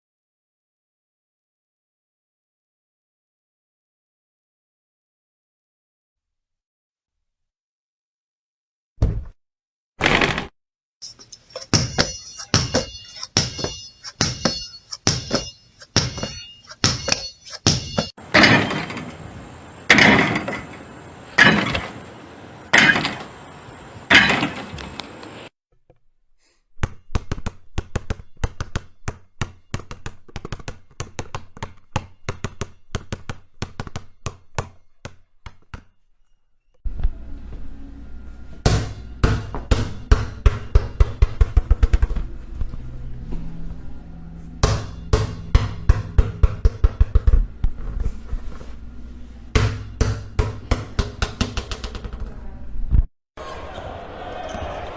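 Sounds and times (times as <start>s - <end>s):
basketball bouncing on hard floor: 11.7s - 18.8s, 26.8s - 35.9s, 38.6s - 42.3s, 44.6s - 48.0s, 49.5s - 52.4s.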